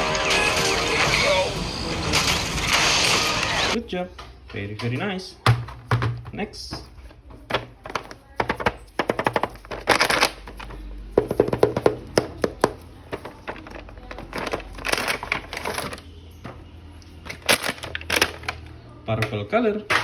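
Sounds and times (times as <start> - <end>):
background music: 0.0 - 3.8
plastic packaging crinkling: 7.5 - 16.2, 17.0 - 18.8.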